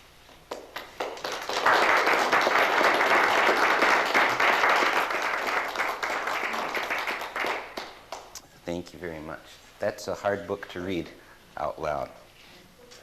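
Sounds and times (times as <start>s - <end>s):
audience applauding: 0.5s - 8.4s.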